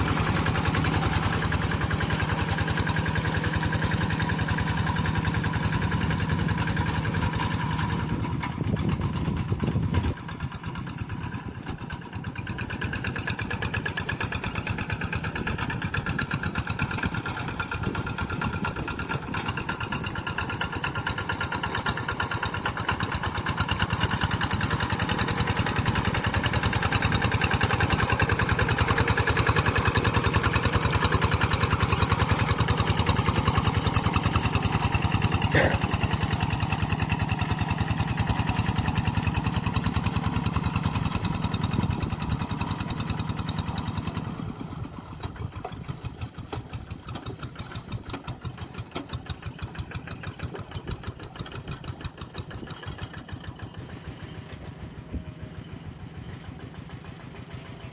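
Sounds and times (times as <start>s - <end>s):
tractor engine pulsing: 0.0s - 57.9s.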